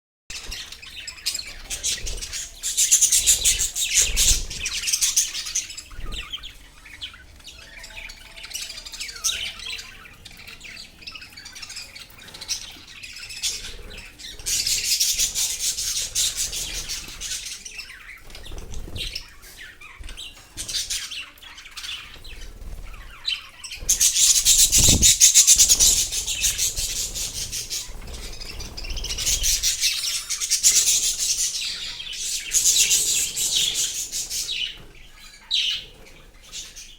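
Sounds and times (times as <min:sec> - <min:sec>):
budgerigars chattering and chirping: 0:00.3 - 0:36.9.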